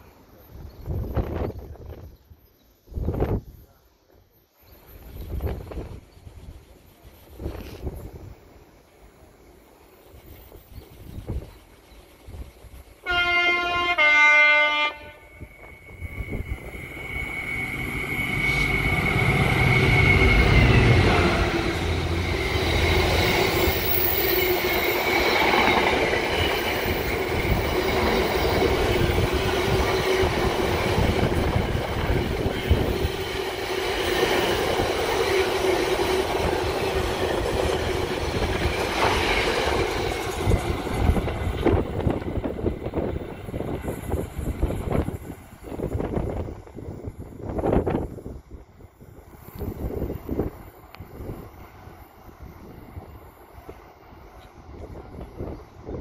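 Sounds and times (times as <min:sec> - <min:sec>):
train wheel and rail noise: 0:00.0 - 0:56.0
two-tone train horn: 0:13.0 - 0:16.4, 0:17.5 - 0:22.2
clickety-clack over rail joints: 0:20.8 - 0:48.0.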